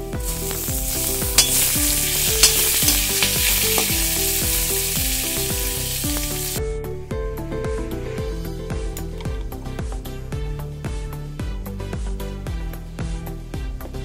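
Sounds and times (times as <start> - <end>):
background music: 0.0 - 14.0
oil sizzling in a pan: 0.1 - 6.6
ladle knocking against pan: 0.5 - 4.1.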